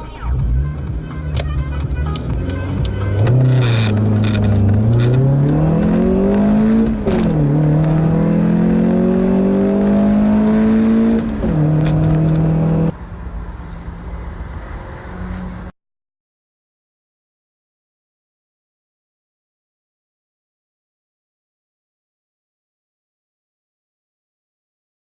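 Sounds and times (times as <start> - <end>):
car engine at full throttle: 0.3 - 15.7.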